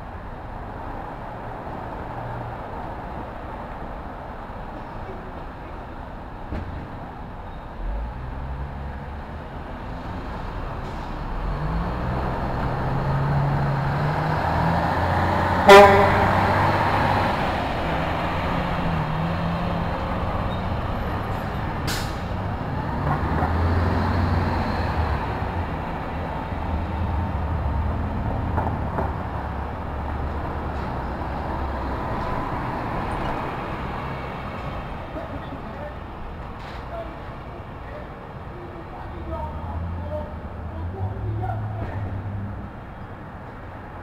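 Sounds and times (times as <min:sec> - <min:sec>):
passing traffic rumble: 0:00.0 - 0:44.0
vehicle horn toot: 0:15.6 - 0:16.6.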